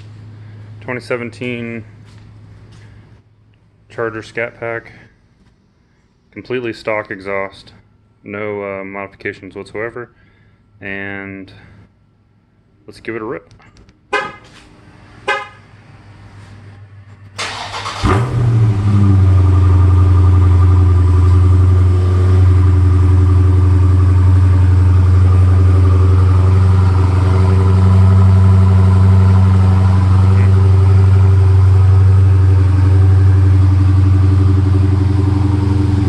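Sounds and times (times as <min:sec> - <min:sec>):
car engine cranking and starting: 0:17.4 - 0:36.0
car engine idling: 0:17.4 - 0:36.0.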